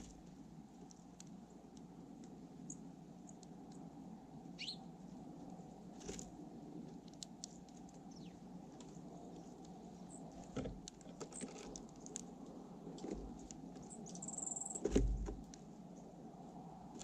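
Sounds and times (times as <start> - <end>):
birds pecking on a feeder: 0.0 - 4.0, 4.6 - 16.2
high-pitched bird chirp: 4.6 - 4.9, 14.0 - 14.8.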